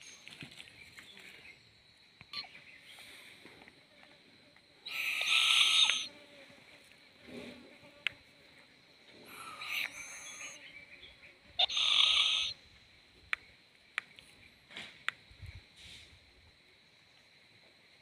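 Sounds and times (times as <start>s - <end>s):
owl clicks: 4.9s - 6.1s, 9.6s - 10.5s, 11.6s - 12.6s
owl screeching: 4.9s - 6.1s, 9.4s - 10.6s, 11.6s - 12.6s.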